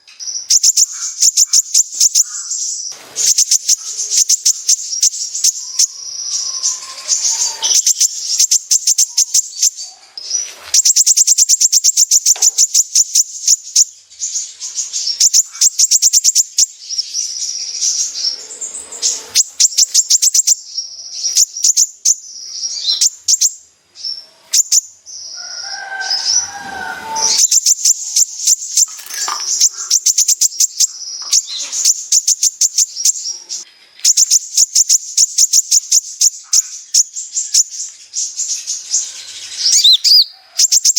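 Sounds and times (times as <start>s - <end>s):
bird rattling trills: 0.5s - 9.7s, 25.6s - 33.3s.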